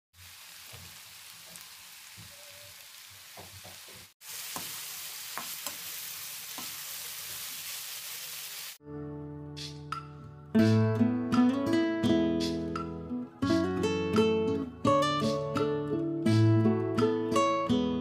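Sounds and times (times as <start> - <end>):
food sizzling in a frying pan: 0.2 - 8.8.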